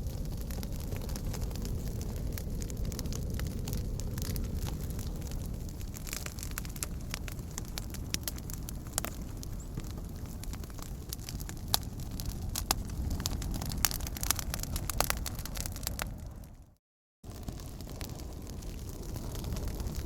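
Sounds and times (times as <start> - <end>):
fire crackling and popping: 0.0 - 20.0
steady low rumble: 0.0 - 20.0.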